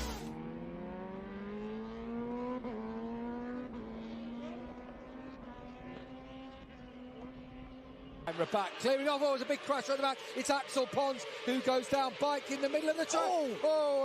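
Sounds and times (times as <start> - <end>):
racing motorcycle engines: 0.0 - 14.0.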